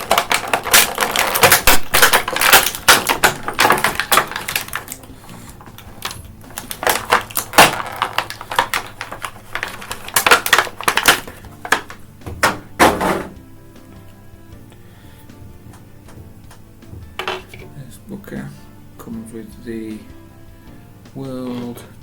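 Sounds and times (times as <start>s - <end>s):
plastic packaging crackling and clicking: 0.0s - 12.7s.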